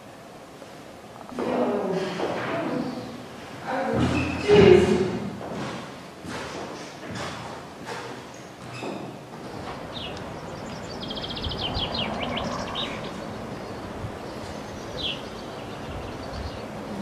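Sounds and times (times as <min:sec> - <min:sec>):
steady outdoor hiss: 0:00.0 - 0:17.0
songbirds singing: 0:09.7 - 0:17.0.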